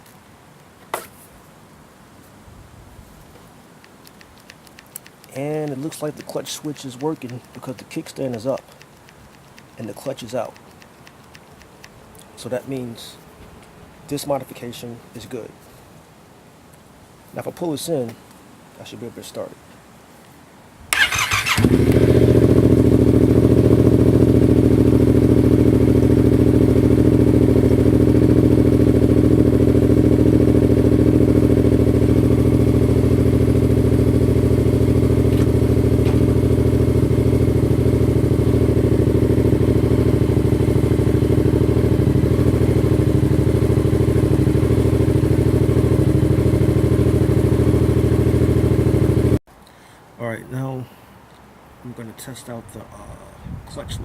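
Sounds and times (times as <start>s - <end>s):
motorcycle engine idling: 21.0s - 49.4s.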